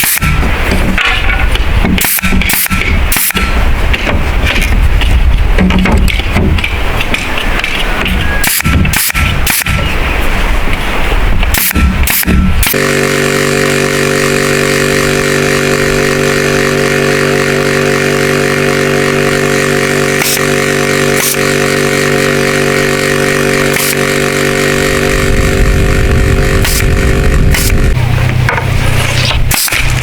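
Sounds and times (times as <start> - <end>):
small engine running: 1.9 - 3.7, 11.6 - 30.0
sharp clicks: 6.0 - 9.9, 26.6 - 27.9.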